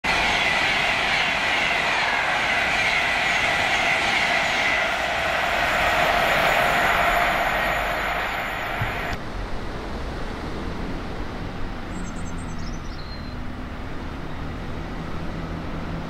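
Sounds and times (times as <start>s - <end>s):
high whining tones: 0.0s - 9.2s
train wheels on rails: 0.0s - 9.2s.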